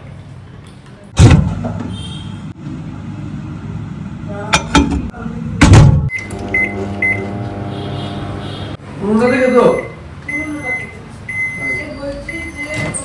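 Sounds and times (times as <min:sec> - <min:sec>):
short electronic beeps: 0:06.1 - 0:08.6, 0:09.2 - 0:13.0.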